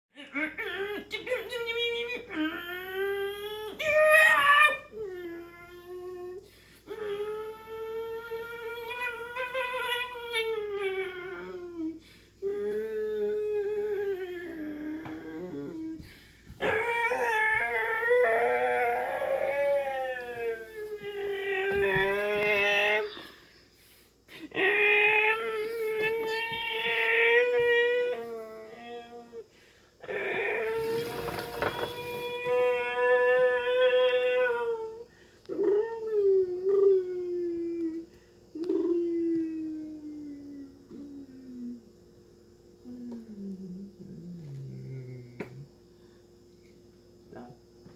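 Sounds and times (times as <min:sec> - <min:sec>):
dog howling: 0:00.3 - 0:23.3, 0:24.6 - 0:38.0.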